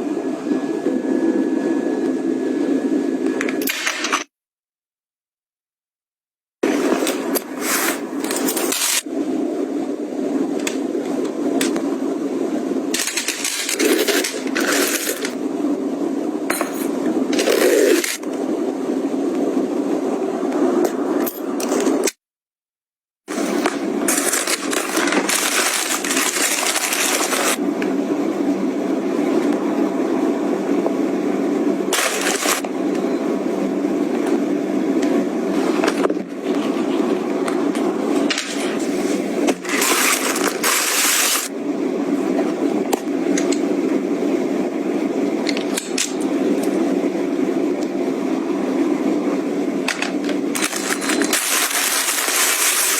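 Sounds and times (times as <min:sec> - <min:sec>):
steady low hum: 0:06.6 - 0:22.2, 0:23.3 - 0:52.9
packaging rustling and crinkling: 0:13.0 - 0:15.4, 0:23.3 - 0:27.6, 0:31.9 - 0:32.6, 0:39.6 - 0:41.5, 0:50.6 - 0:52.9.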